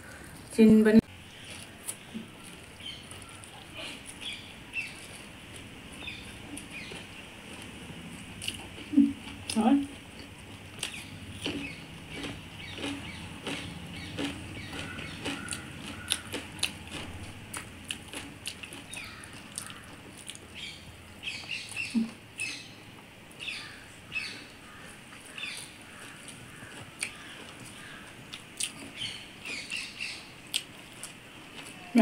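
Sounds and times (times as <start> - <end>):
wet chewing: 1.3 - 20.7, 24.7 - 31.9
lip smacking: 10.2 - 20.5.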